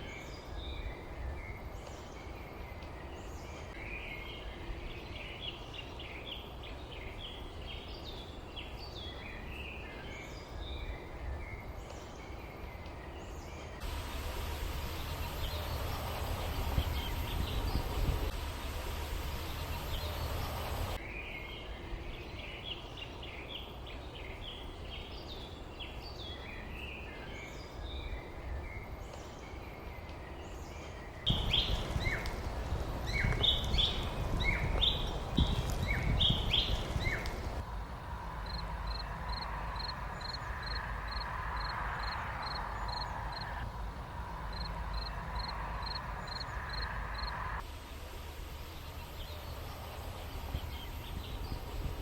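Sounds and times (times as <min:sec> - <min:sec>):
songbirds chirping and calling: 0:00.0 - 0:37.7, 0:38.4 - 0:47.4
low outdoor rumble: 0:13.8 - 0:21.0, 0:31.3 - 0:52.0.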